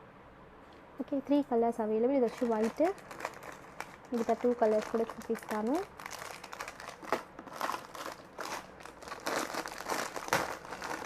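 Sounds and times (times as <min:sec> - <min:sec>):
packaging crinkling: 0:02.2 - 0:11.0.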